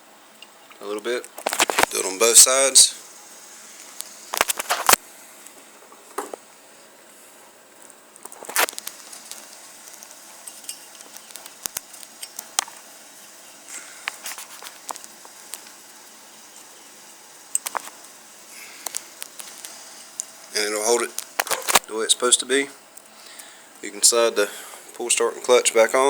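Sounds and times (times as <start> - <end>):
plastic parts clicking and rustling: 1.3 - 2.0, 4.0 - 5.0, 8.2 - 12.8, 17.5 - 18.0, 21.0 - 21.9.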